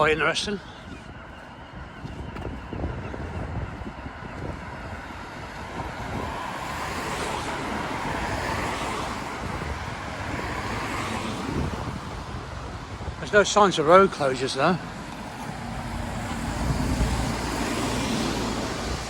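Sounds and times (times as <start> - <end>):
wind rumble on microphone: 0.8 - 14.2, 14.8 - 19.0
car passing by: 5.1 - 19.0.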